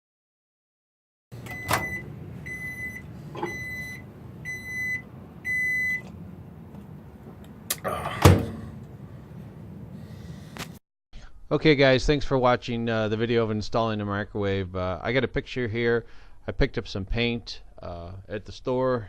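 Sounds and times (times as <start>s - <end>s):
microwave beeping: 1.3s - 6.3s
microwave door clunks: 1.4s - 4.0s, 8.1s - 8.8s.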